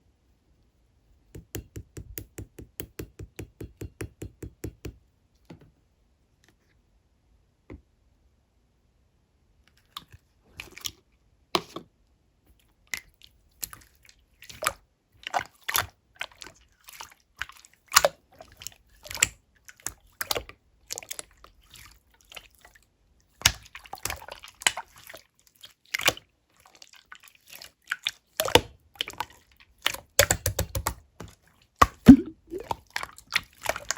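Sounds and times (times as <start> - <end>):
wet clicks of slime: 31.8 - 32.7
slime popping and squelching: 31.9 - 32.7.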